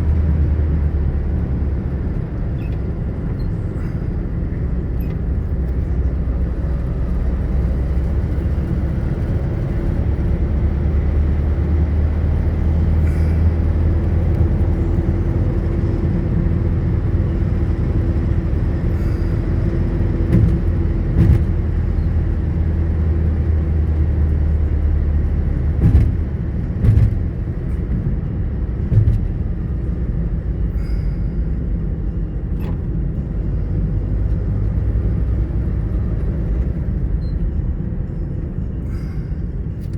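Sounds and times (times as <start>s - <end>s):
road noise: 0.0s - 39.9s
vehicle engine rumble: 0.0s - 39.9s
sharp knocks or pops: 20.3s - 21.6s.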